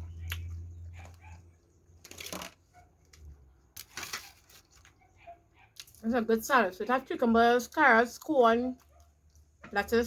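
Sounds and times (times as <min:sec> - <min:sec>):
crunchy chewing of salad: 0:00.0 - 0:06.3.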